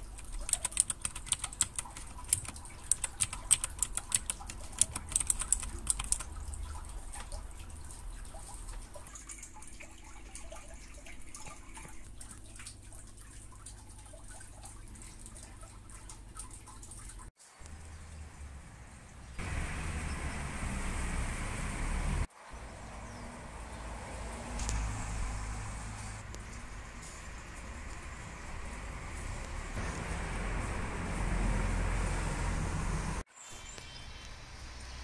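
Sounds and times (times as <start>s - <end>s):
mechanical keyboard key clicks: 0.2s - 6.2s.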